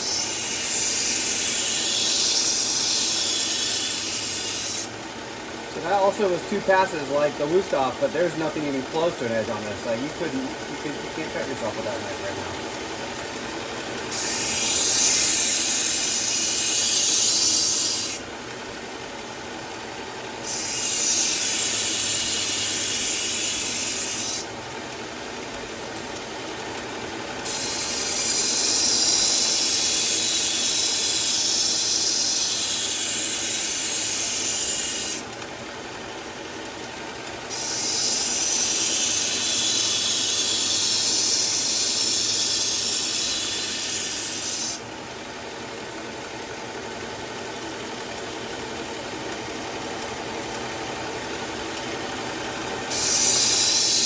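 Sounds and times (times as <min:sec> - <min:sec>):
knife grinding on sharpening belt: 0:00.0 - 0:04.9, 0:14.1 - 0:18.2, 0:20.4 - 0:24.4, 0:27.4 - 0:35.2, 0:37.5 - 0:44.8, 0:52.9 - 0:54.0
belt machine running: 0:00.0 - 0:54.0.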